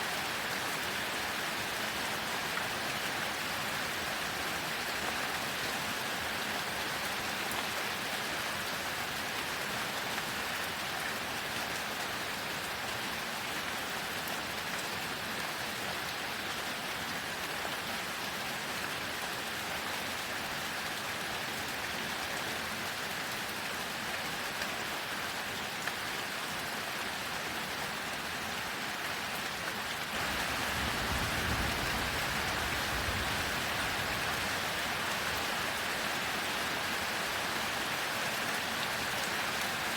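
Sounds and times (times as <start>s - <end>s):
heavy rain falling: 29.0s - 39.9s
low rumble of thunder: 30.6s - 34.2s.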